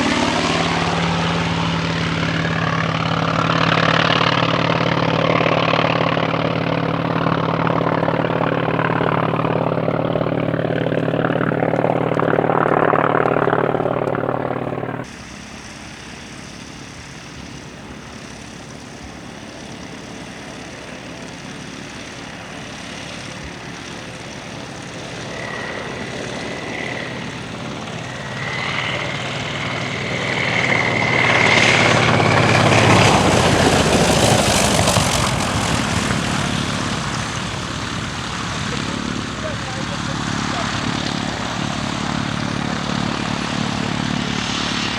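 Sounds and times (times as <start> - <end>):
high whine: 0.0 - 18.4
radial aircraft engine and propeller: 0.0 - 44.9.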